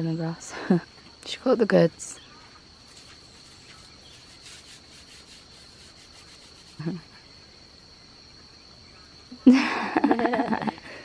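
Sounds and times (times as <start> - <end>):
high-pitched insect drone: 0.0 - 11.0
faint rustling: 2.2 - 7.2.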